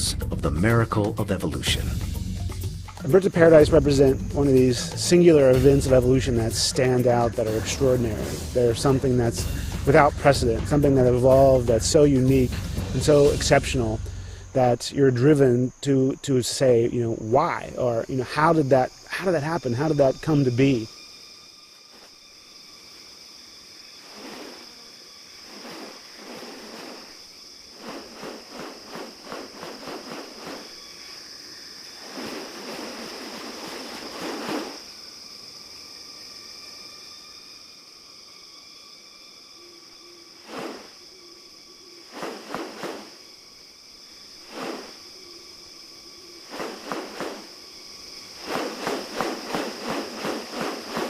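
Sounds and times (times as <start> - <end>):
insects droning: 0.0 - 51.0
short rustling bursts: 24.0 - 24.8, 25.4 - 31.2, 31.8 - 34.9, 40.4 - 41.0, 42.1 - 43.2, 44.4 - 45.1, 46.4 - 51.0.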